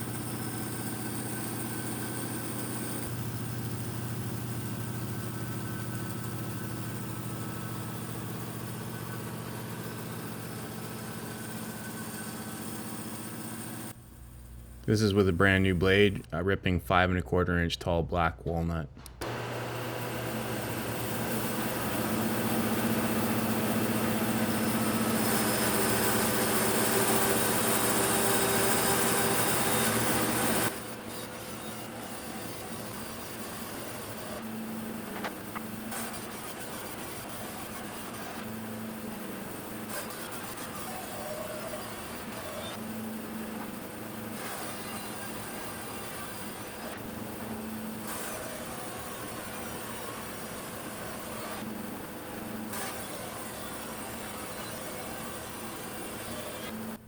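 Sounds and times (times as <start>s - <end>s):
bandsaw motor humming: 0.0s - 16.3s, 19.0s - 57.0s
bandsaw cutting wood: 19.2s - 34.2s.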